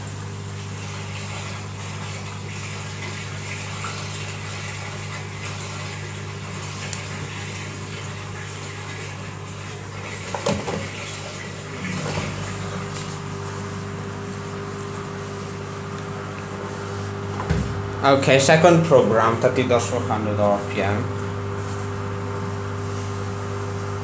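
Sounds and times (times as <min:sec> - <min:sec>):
washing machine motor hum: 0:00.0 - 0:24.0
water moving in drum: 0:00.0 - 0:24.0
washing machine clunk: 0:10.0 - 0:13.2, 0:17.3 - 0:17.9.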